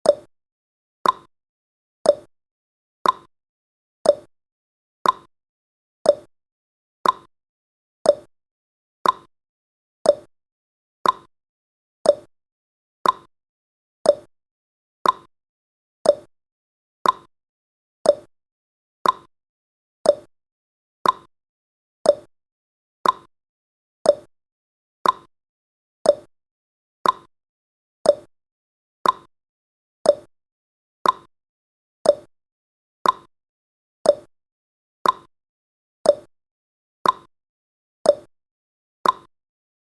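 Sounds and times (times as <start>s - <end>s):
clock ticking: 1.0s - 1.3s, 3.0s - 3.3s, 5.0s - 5.3s, 7.0s - 7.3s, 9.0s - 9.3s, 11.0s - 11.3s, 13.0s - 13.3s, 14.1s - 14.3s, 15.0s - 15.3s, 16.1s - 16.3s, 17.0s - 17.3s, 18.1s - 18.3s, 19.0s - 19.3s, 20.1s - 20.3s, 21.0s - 21.3s, 22.1s - 22.3s, 23.0s - 23.3s, 24.1s - 24.3s, 25.0s - 25.3s, 26.1s - 26.3s, 27.0s - 27.3s, 28.1s - 28.3s, 29.0s - 29.3s, 30.1s - 30.3s, 31.0s - 31.3s, 32.1s - 32.3s, 33.0s - 33.3s, 34.1s - 34.3s, 35.0s - 35.3s, 36.1s - 36.3s, 37.0s - 37.3s, 38.1s - 38.3s, 39.0s - 39.3s.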